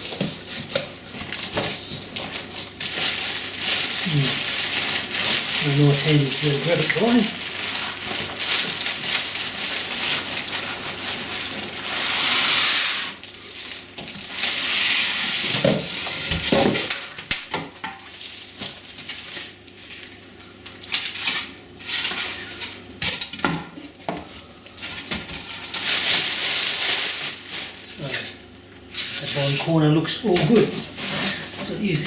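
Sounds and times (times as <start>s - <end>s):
cardboard rustling and scraping: 0.0s - 17.2s, 24.8s - 32.0s.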